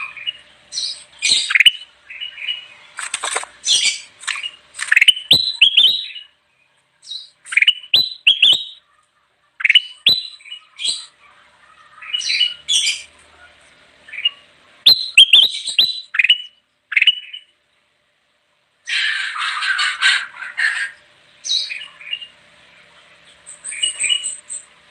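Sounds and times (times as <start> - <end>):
bulbul whistled song: 0.0 - 2.7, 3.6 - 6.4, 7.0 - 8.8, 9.6 - 11.1, 14.1 - 17.5
harsh chattering bird calls: 0.0 - 18.0, 18.8 - 24.9.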